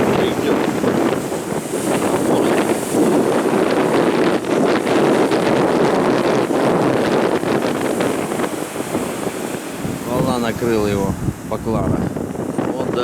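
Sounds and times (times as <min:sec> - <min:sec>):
stormy sea surf: 0:00.0 - 0:13.0
wind buffeting microphone: 0:00.0 - 0:13.0.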